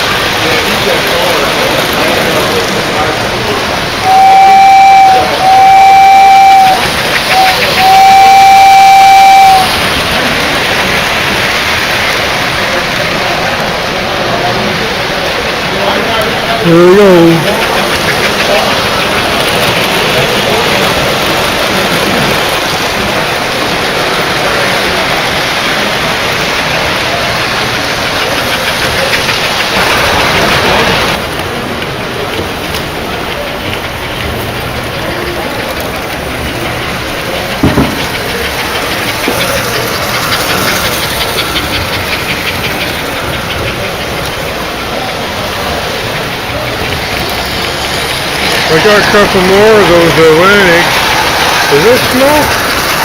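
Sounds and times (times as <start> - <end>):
model trains running: 0.0 - 53.0
model train whistle: 4.0 - 9.9.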